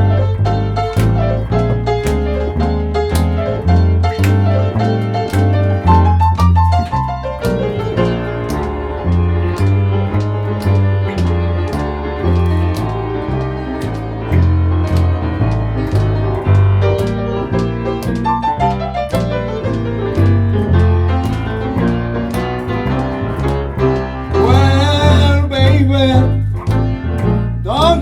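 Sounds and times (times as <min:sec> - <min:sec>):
live blues band playing: 0:00.0 - 0:28.0
piano solo: 0:00.0 - 0:28.0
walking bass line: 0:00.0 - 0:28.0
man singing: 0:24.4 - 0:26.5, 0:27.7 - 0:28.0.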